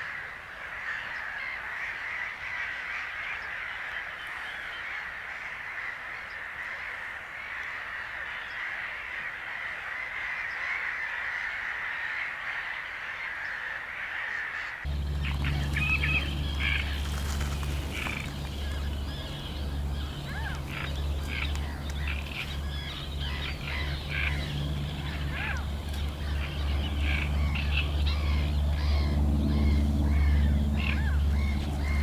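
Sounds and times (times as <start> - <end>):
bird chirps and calls: 14.9 - 32.0
high hissy bird chorus: 14.9 - 32.0
steady low rumble: 14.9 - 32.0.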